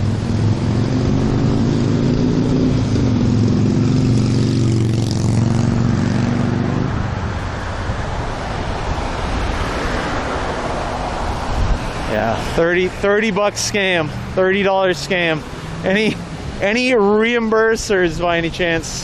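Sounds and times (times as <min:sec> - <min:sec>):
motorcycle engine droning: 0:00.0 - 0:07.8
rushing noise: 0:00.0 - 0:19.0.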